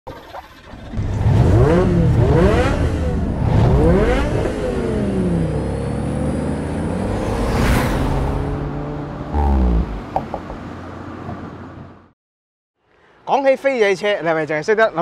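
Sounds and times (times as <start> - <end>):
car engine accelerating: 0.7 - 12.1.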